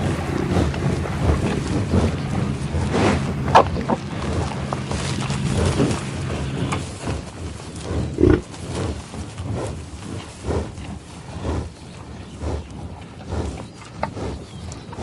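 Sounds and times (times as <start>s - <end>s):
farm animal calling: 0.0s - 8.5s
low outdoor rumble: 0.0s - 15.0s.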